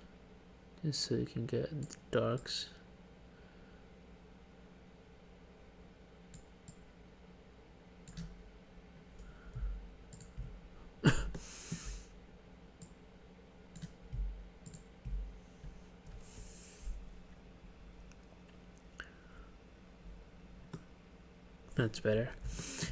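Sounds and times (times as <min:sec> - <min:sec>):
computer mouse clicks: 0:06.3 - 0:06.8, 0:08.0 - 0:08.4, 0:10.1 - 0:10.6, 0:13.7 - 0:15.2
soft low thumps: 0:09.5 - 0:10.7, 0:14.0 - 0:17.8.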